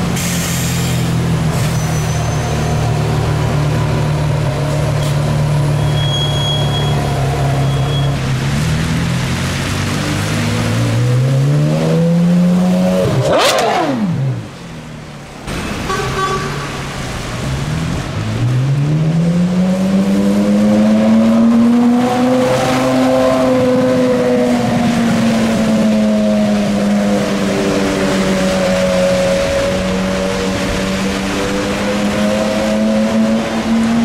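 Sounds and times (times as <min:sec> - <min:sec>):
sports car engine accelerating: 0:08.3 - 0:14.6, 0:17.6 - 0:34.0.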